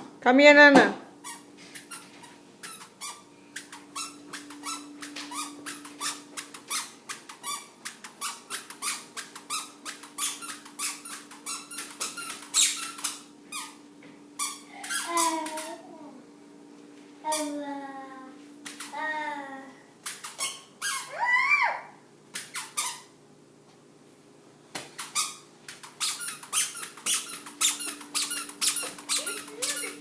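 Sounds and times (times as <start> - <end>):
faint steady hum: 0.0 - 30.0
squeaky sandals with footsteps: 1.2 - 13.8, 20.0 - 21.1, 22.3 - 23.1, 24.9 - 30.0.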